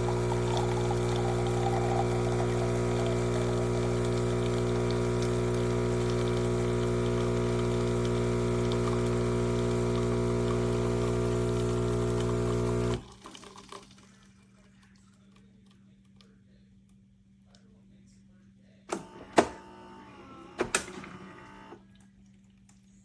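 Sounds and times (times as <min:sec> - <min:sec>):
espresso machine pump humming: 0:00.0 - 0:13.4, 0:18.9 - 0:21.8
liquid trickling and splashing: 0:13.0 - 0:15.2.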